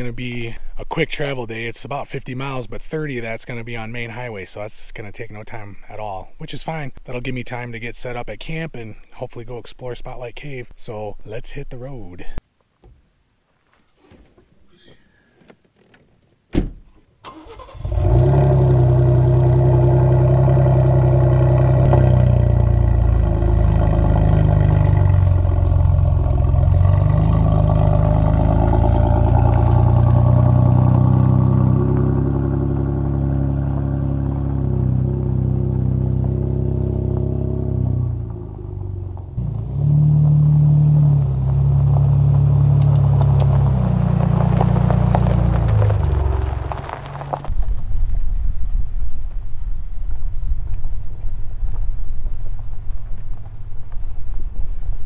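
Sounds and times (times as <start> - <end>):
car door slamming: 16.5 - 17.0
truck engine running: 17.4 - 47.5.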